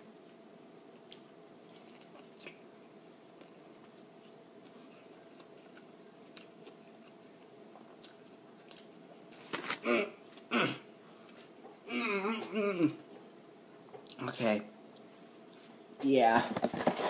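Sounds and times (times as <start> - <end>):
faint steady hum: 0.0 - 17.0
person chewing crunchy food: 1.0 - 2.6, 3.4 - 10.5.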